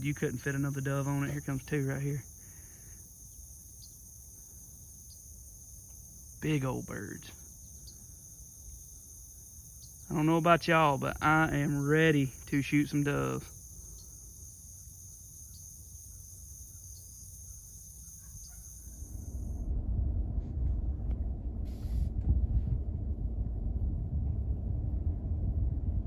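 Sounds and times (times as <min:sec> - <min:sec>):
low rumbling noise: 0:00.0 - 0:14.4, 0:19.1 - 0:26.0
high-pitched insect chorus: 0:00.0 - 0:19.6.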